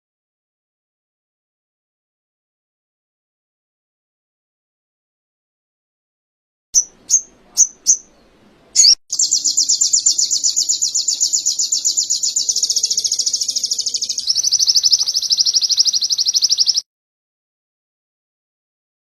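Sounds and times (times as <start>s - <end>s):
songbird chirps and trills: 6.8s - 16.8s.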